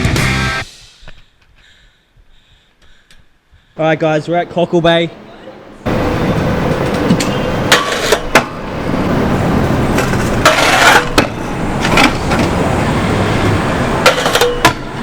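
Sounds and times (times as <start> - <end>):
scooter scraping: 5.9 - 15.0
scooter wheels rolling on pavement: 5.9 - 15.0
scooter hitting the ground: 6.6 - 8.6, 9.9 - 12.6, 14.0 - 15.0.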